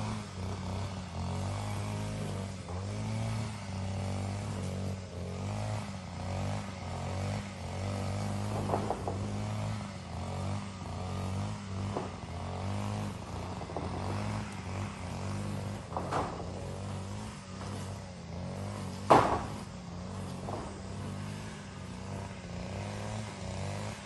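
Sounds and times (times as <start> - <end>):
motor droning hum: 0.0 - 24.0
sharp knocks or clatters: 8.4 - 9.5, 15.9 - 16.6, 19.0 - 19.7.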